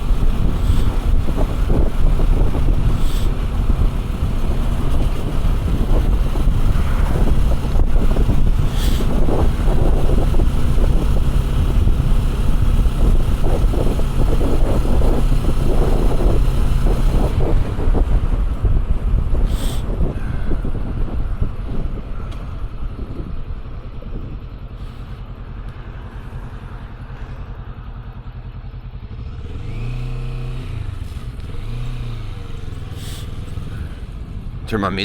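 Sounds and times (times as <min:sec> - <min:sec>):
wind buffeting microphone: 0:00.0 - 0:34.8
motorcycle engine running: 0:00.0 - 0:35.0
road noise: 0:00.0 - 0:35.0.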